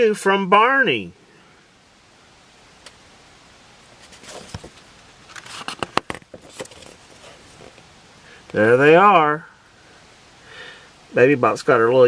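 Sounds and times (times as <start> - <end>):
book pages turning: 4.0 - 7.8.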